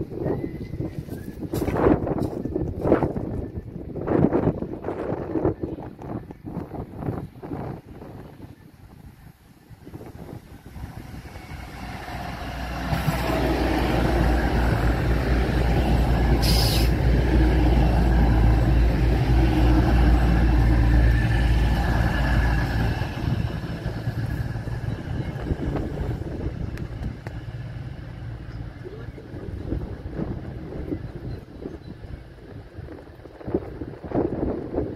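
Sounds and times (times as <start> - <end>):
diesel train passing: 0.0 - 34.9
brief hiss: 16.4 - 17.0.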